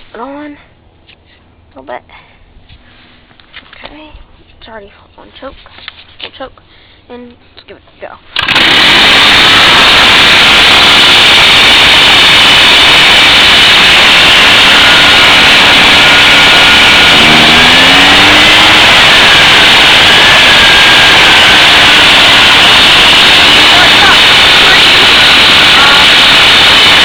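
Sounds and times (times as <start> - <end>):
leaf blower running: 8.4 - 27.0.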